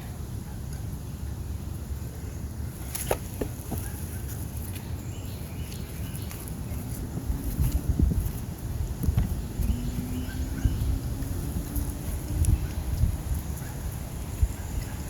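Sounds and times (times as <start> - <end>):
wind buffeting microphone: 5.3 - 15.0.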